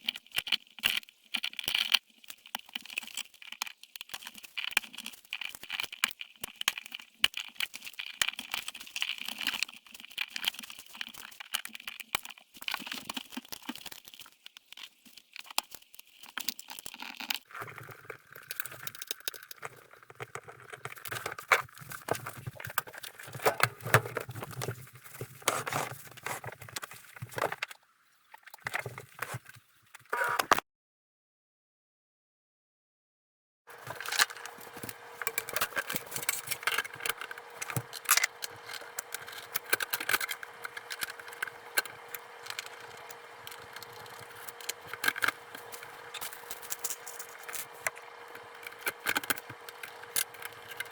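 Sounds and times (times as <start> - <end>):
parts clicking and rattling: 17.5 - 27.7, 33.7 - 50.9
low steady hum: 33.7 - 50.9.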